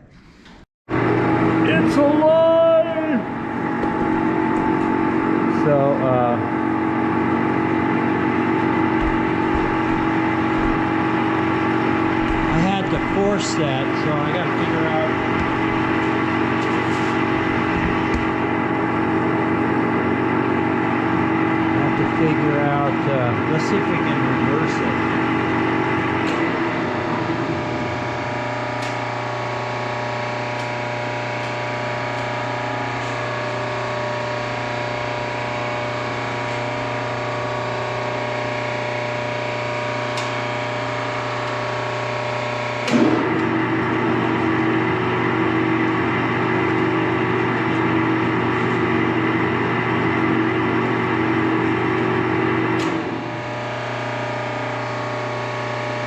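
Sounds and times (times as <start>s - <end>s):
lathe motor hum: 0.9s - 56.0s.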